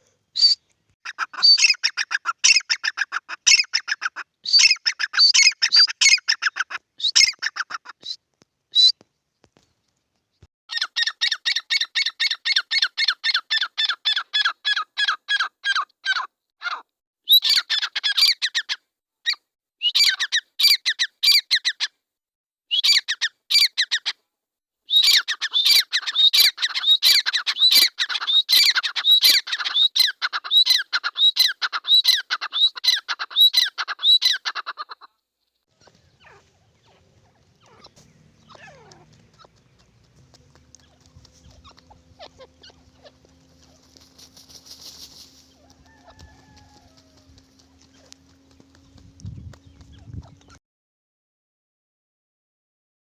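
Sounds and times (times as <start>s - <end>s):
francolins calling rapidly: 0.4s - 8.2s, 10.7s - 18.8s, 19.9s - 21.9s, 22.8s - 24.1s, 24.9s - 35.1s, 35.7s - 50.6s.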